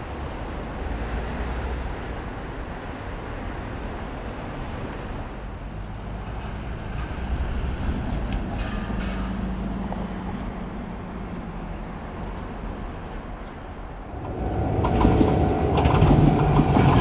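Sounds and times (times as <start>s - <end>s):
train rumbling: 5.9s - 17.0s.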